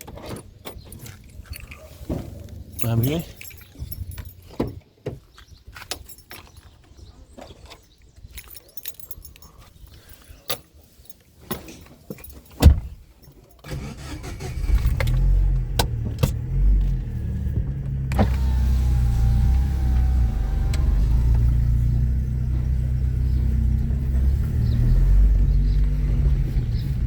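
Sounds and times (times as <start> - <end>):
car engine rumble: 0.0 - 4.9, 13.7 - 27.0.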